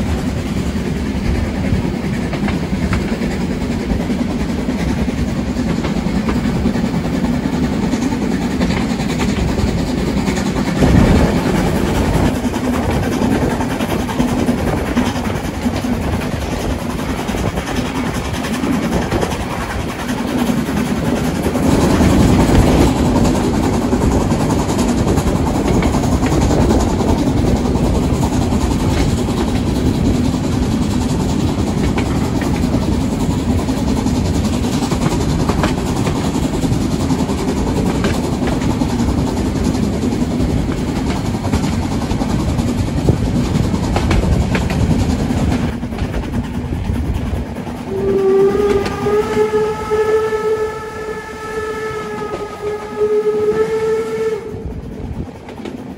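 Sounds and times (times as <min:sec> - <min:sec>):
steam train rumbling: 0:00.0 - 0:55.9
train knocks: 0:00.0 - 0:55.9
steam locomotive whistle: 0:47.8 - 0:55.3.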